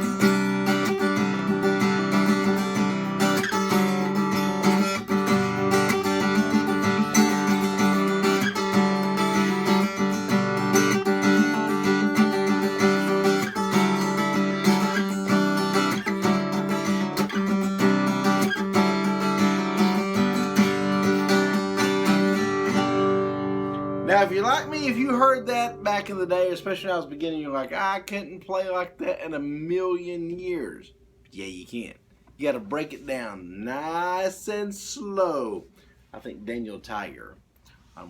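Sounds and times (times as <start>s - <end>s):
acoustic guitar strumming: 0.0s - 28.9s.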